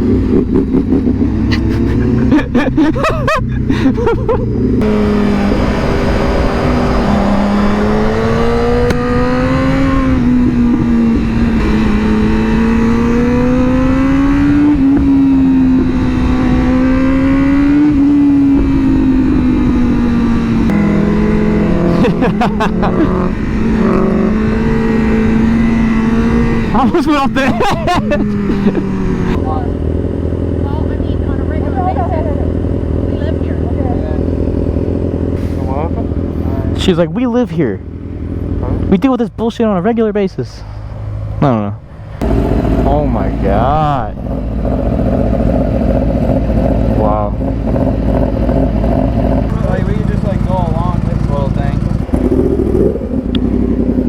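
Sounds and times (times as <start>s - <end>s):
wind noise: 0.0s - 30.1s
motorcycle engine running: 0.0s - 39.6s, 40.6s - 54.0s.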